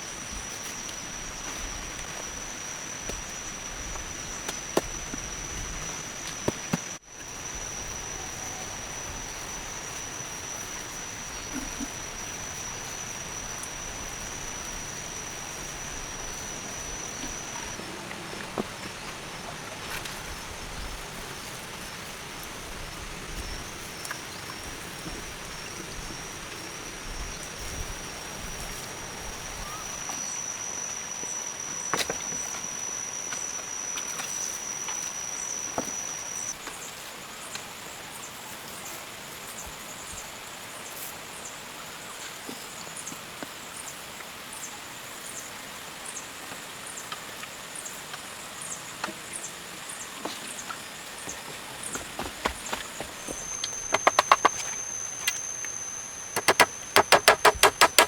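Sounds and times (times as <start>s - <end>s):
sharp clicks or knocks: 53.9s - 54.7s, 56.4s - 58.0s.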